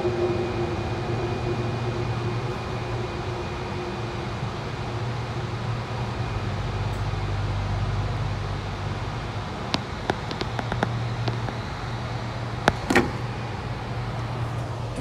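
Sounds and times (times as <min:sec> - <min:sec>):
metro train rumbling: 0:00.0 - 0:15.0
sharp clicks: 0:09.8 - 0:11.7.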